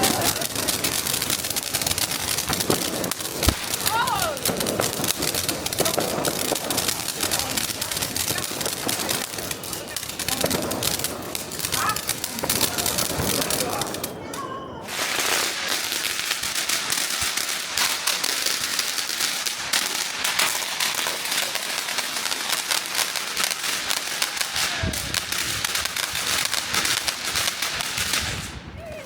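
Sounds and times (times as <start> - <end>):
firecrackers banging: 0.0 - 29.0.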